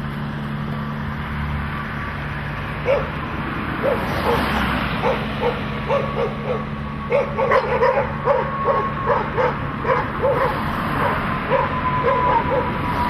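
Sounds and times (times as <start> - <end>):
dogs barking: 2.8 - 3.2, 3.8 - 12.9.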